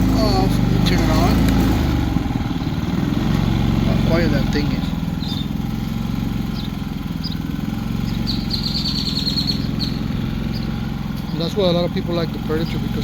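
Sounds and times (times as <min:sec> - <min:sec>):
birds chirping: 0:00.0 - 0:13.0
generator engine humming: 0:00.0 - 0:13.0
high bird trill: 0:04.6 - 0:13.0.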